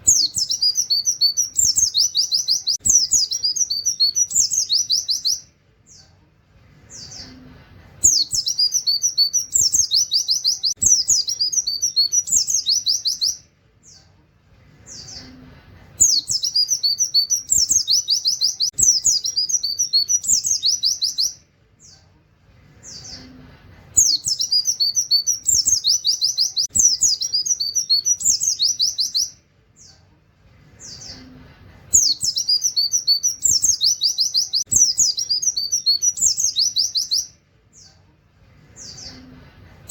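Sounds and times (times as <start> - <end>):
bird twittering song: 0.0 - 6.2, 6.8 - 15.4, 16.0 - 22.1, 24.0 - 30.0, 30.8 - 38.0.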